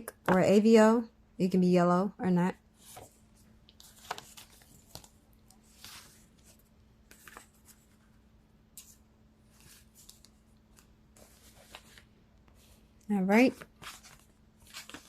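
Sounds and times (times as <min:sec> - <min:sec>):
faint steady hum: 0:00.0 - 0:15.0
cards rustling and ticking: 0:03.0 - 0:08.0, 0:13.5 - 0:15.0.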